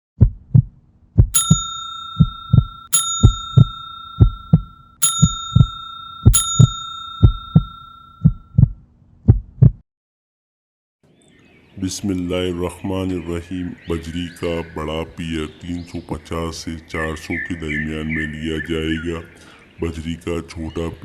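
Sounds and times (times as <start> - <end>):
heartbeat-like double thumps: 0.2 - 1.6
bell-like chime ringing: 1.4 - 8.4.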